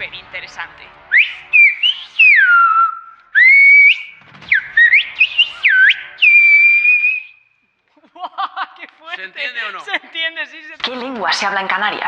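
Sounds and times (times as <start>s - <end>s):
person whistling speech: 1.1s - 7.4s.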